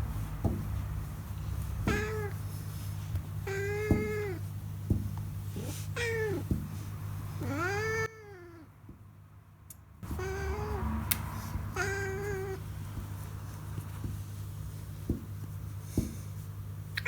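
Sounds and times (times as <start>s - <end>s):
cat meowing: 1.8s - 2.4s, 3.4s - 4.4s, 5.6s - 6.6s, 7.4s - 8.7s, 10.0s - 12.7s.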